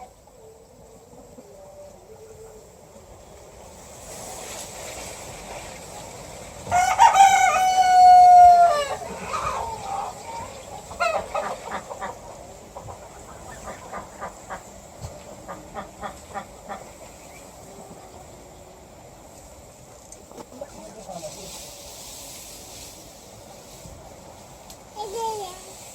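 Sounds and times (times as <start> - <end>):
rooster crowing: 6.7 - 11.3.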